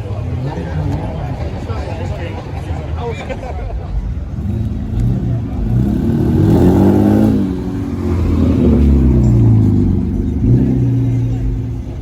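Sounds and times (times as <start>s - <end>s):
car engine revving: 3.9s - 12.0s.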